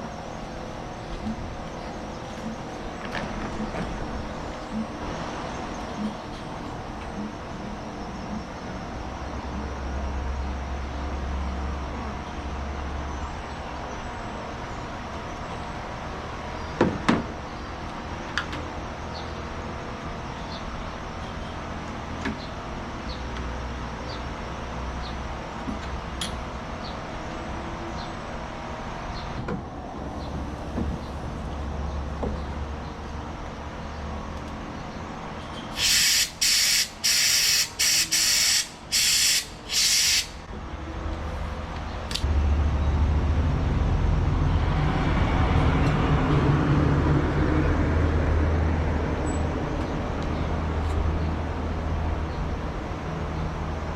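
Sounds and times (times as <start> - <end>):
vehicle engine rumbling: 0.0 - 53.9
short loud hisses: 35.7 - 40.4.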